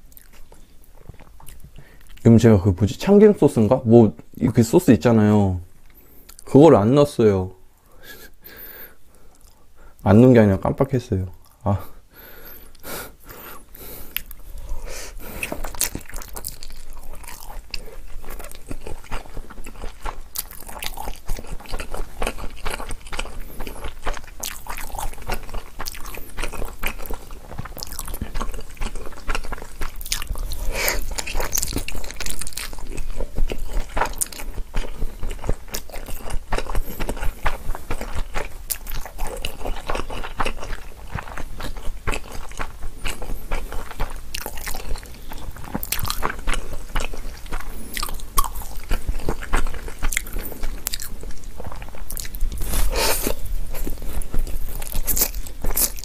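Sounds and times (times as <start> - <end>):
wet chewing and smacking: 0.0 - 2.3, 13.7 - 56.0.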